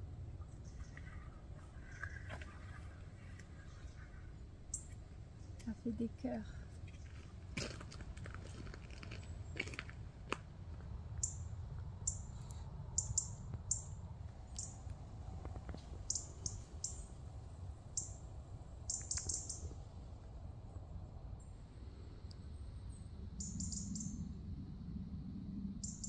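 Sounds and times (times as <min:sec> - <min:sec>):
low steady rumble: 0:00.0 - 0:26.0
small bird chirping: 0:03.6 - 0:05.8, 0:11.2 - 0:14.8, 0:16.0 - 0:17.2, 0:17.9 - 0:19.8, 0:22.9 - 0:24.3, 0:25.8 - 0:26.0.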